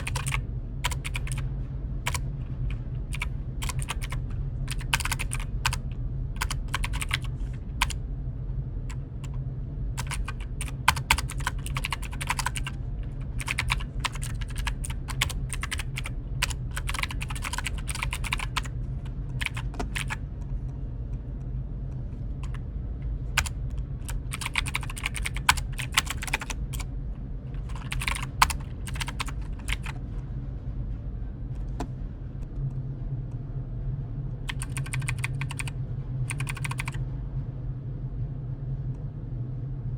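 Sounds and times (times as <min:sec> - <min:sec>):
keyboard typing clicks: 0:00.0 - 0:01.4, 0:02.1 - 0:08.0, 0:10.0 - 0:18.7, 0:19.4 - 0:20.2, 0:23.4 - 0:26.8, 0:27.6 - 0:30.0, 0:34.5 - 0:35.7, 0:36.3 - 0:37.0
steady low hum: 0:00.0 - 0:39.9.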